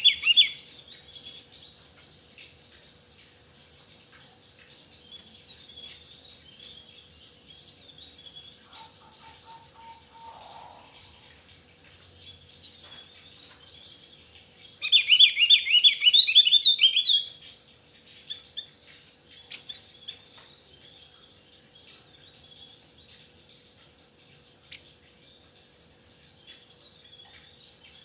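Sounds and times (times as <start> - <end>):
faint bird chirps: 4.9 - 11.4
bird singing fast rising notes: 8.3 - 11.3, 14.8 - 17.3.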